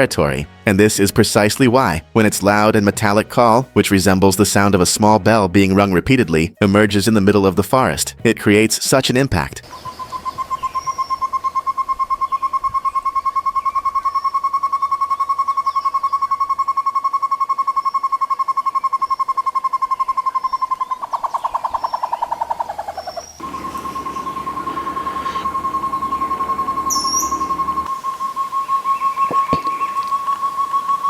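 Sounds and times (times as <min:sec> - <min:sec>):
bird hollow bell-like notes: 0:23.4 - 0:31.0.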